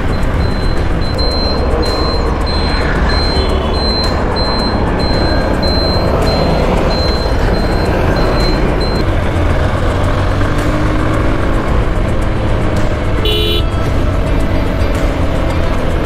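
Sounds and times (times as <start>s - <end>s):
motorcycle engine: 0.0s - 16.0s
short high beep: 0.1s - 9.0s
vehicle horn: 0.2s - 8.8s, 13.2s - 13.9s.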